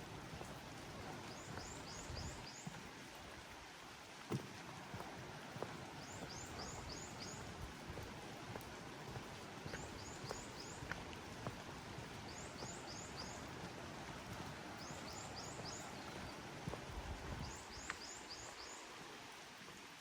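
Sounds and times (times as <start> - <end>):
rain hiss: 0.0 - 20.0
raindrops ticking: 4.3 - 18.4.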